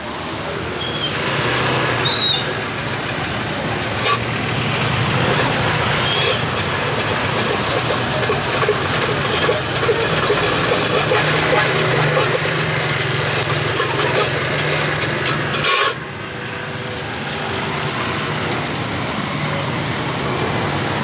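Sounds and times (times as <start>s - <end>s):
street traffic: 0.0s - 21.0s
vehicle engine running: 1.6s - 21.0s
high squeaks: 3.8s - 16.0s.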